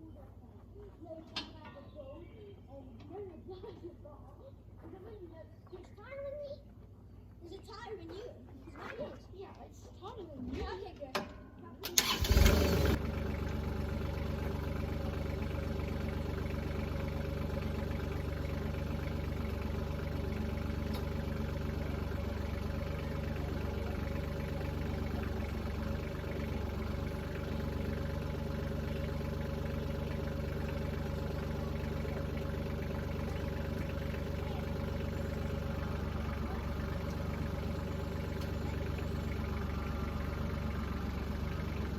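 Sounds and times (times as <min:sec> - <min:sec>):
diesel tractor engine starting: 0:11.8 - 0:41.9.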